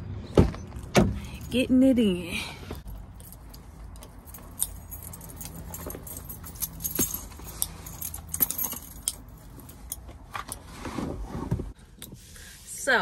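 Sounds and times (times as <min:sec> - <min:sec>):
keys jangling: 0:02.8 - 0:10.0.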